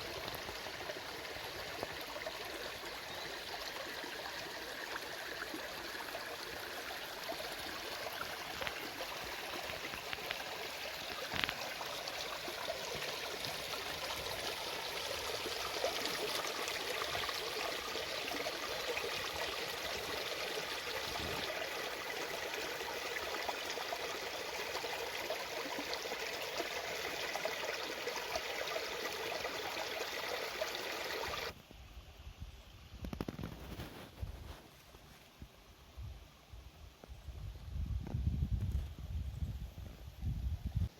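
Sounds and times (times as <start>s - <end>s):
stream babbling over stones: 0.0s - 31.6s.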